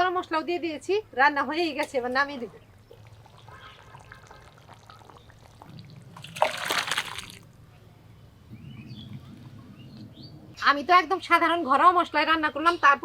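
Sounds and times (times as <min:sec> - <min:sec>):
liquid splashing or pouring: 0:02.8 - 0:07.4.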